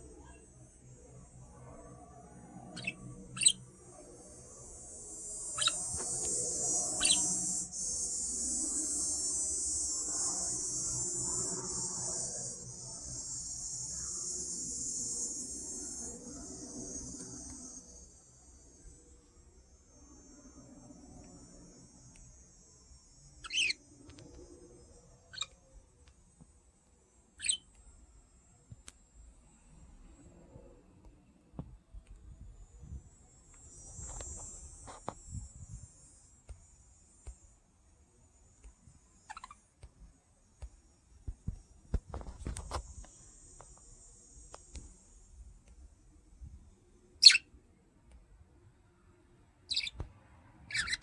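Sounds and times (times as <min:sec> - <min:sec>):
soft bird chirp: 0:02.2 - 0:04.1, 0:05.4 - 0:08.3, 0:23.4 - 0:24.3, 0:25.1 - 0:25.6, 0:27.4 - 0:27.8, 0:39.2 - 0:39.6, 0:47.2 - 0:47.5, 0:49.7 - 0:51.0
budgerigar chirping: 0:02.8 - 0:03.6, 0:05.6 - 0:05.8, 0:23.4 - 0:23.8, 0:27.4 - 0:27.6, 0:39.3 - 0:39.6, 0:47.2 - 0:47.5, 0:49.7 - 0:50.0, 0:50.7 - 0:51.0.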